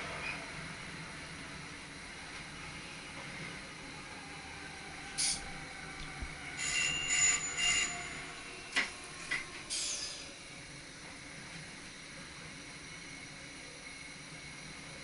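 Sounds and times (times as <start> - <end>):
train running rumble: 0.0 - 15.0
train wheels squealing: 5.0 - 5.5, 6.4 - 8.5, 9.2 - 10.3.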